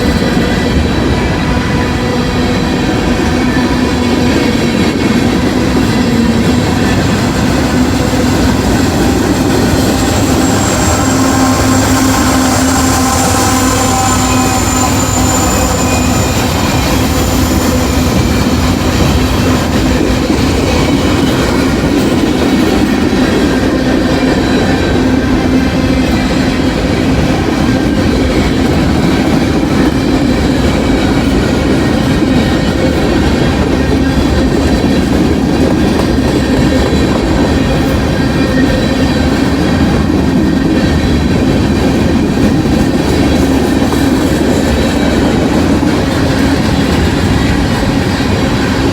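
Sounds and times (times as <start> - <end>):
freight train rumbling past: 0.0 - 48.9
high wheel squeal: 7.7 - 20.0.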